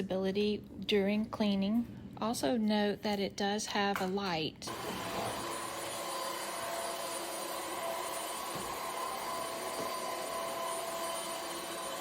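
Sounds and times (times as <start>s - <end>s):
stick vacuum running: 4.7s - 12.0s.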